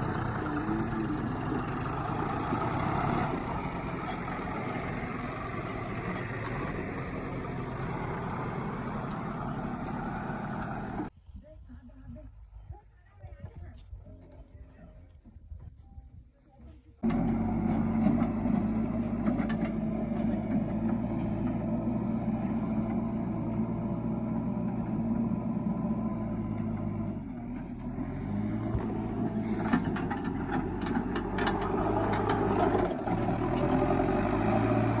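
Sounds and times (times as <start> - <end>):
heavy diesel engine running: 0.0 - 11.1, 17.0 - 35.0
knocks and clatter: 17.0 - 21.7, 28.7 - 33.8.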